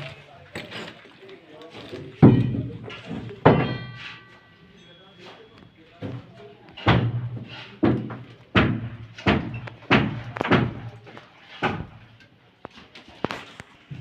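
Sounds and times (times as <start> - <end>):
heavy knocks with low ring: 2.2 - 4.5, 6.0 - 10.8.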